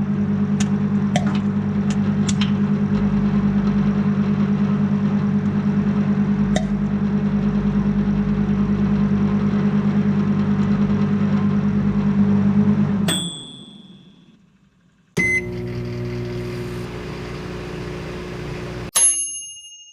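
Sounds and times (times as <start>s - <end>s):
microwave oven humming: 0.0s - 18.9s
microwave chime: 13.1s - 14.4s, 15.2s - 16.9s, 17.8s - 19.9s
short beep: 15.2s - 15.6s.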